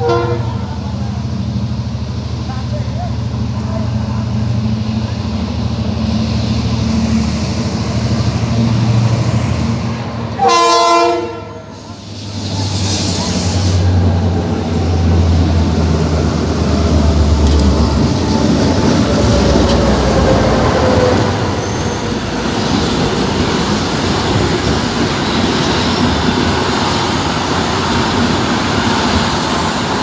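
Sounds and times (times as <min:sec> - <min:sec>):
train horn blast: 0:00.0 - 0:00.7, 0:10.3 - 0:11.9
train rumbling: 0:00.0 - 0:30.0.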